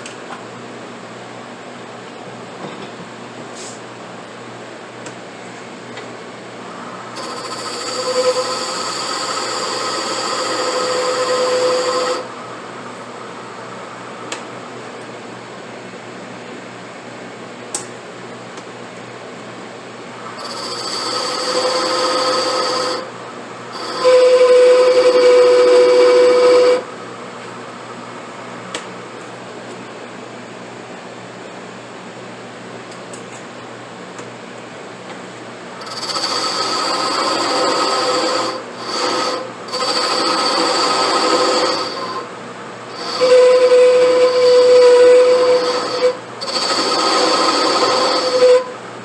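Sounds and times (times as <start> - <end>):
room hum: 0.0 - 49.0
lathe cutting with bright hiss: 6.8 - 12.3, 20.4 - 23.1, 23.7 - 26.9, 35.8 - 42.3, 42.9 - 48.7.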